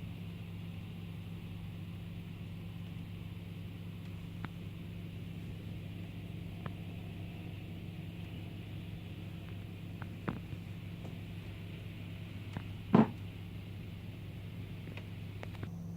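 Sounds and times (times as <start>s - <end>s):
low mechanical hum: 0.0s - 15.9s
faint clicks: 4.0s - 4.6s, 14.8s - 15.7s.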